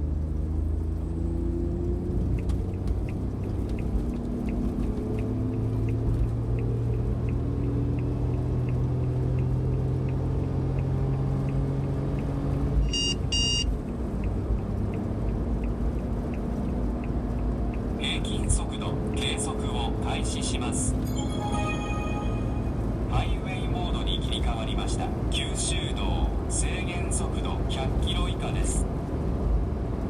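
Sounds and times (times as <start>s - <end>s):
van engine and road rumble: 0.0s - 21.1s, 22.8s - 30.0s
short electronic beeps: 12.8s - 13.7s, 21.0s - 23.1s.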